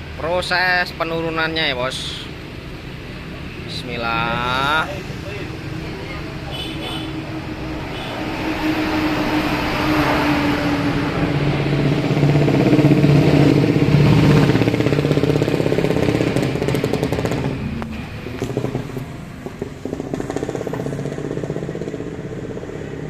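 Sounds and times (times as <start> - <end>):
vehicle engine running: 2.0 - 23.0.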